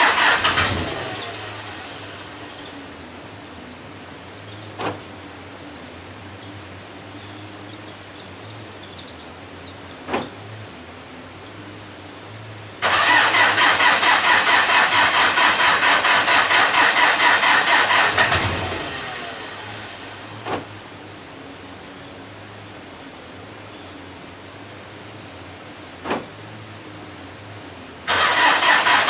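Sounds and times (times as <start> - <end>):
starter cranking diesel engine: 0.0 - 2.9, 12.8 - 20.9, 28.1 - 29.0.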